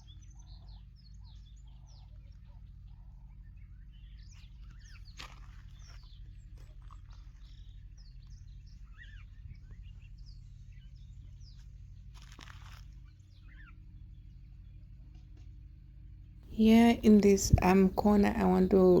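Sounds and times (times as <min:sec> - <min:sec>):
small birds chirping: 0:00.0 - 0:15.0
steady low hum: 0:00.0 - 0:19.0
brief rustle: 0:12.2 - 0:13.0.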